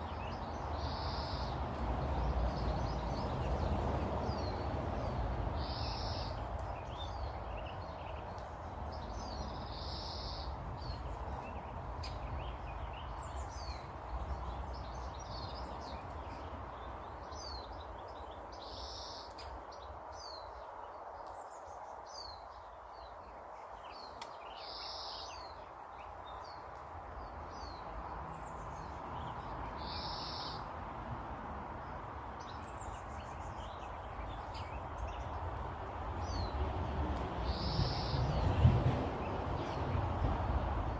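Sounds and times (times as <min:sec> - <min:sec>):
small birds chirping: 0:00.0 - 0:30.7, 0:31.8 - 0:40.9
loud bird call: 0:37.4 - 0:38.3.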